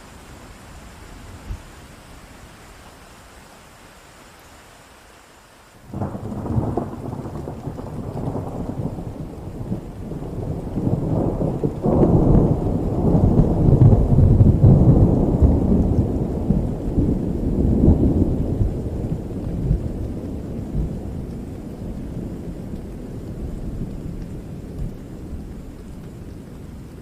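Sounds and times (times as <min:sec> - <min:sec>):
steady rain: 0:00.0 - 0:27.0
thunder rumbling: 0:05.9 - 0:27.0.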